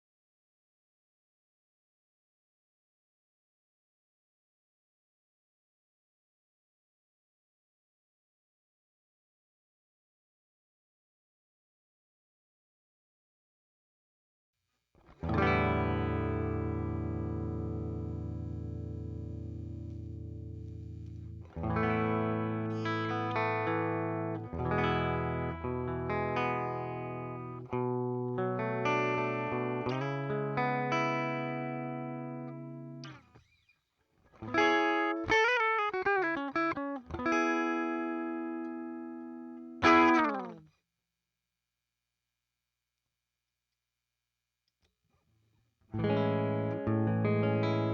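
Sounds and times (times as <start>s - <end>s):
electric guitar playing: 15.2s - 33.2s, 34.4s - 40.7s, 46.0s - 47.9s.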